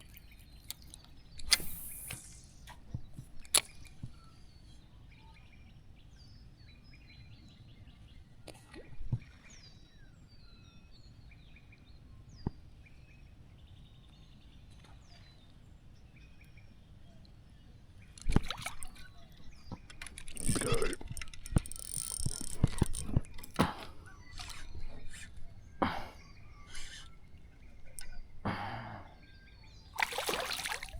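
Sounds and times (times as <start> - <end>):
small birds chirping: 0.0 - 30.9
sharp clicks: 19.7 - 23.8.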